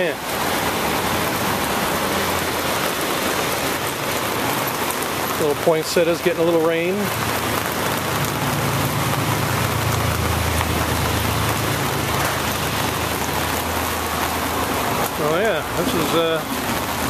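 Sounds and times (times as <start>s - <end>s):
car driving on wet road: 0.0s - 17.0s
steady rain on wet street: 0.0s - 17.0s.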